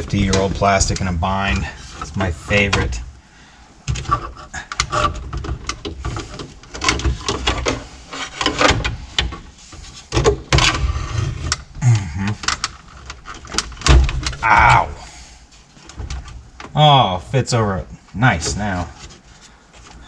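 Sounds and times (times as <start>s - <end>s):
plastic trim clicking and scraping: 3.9s - 11.7s.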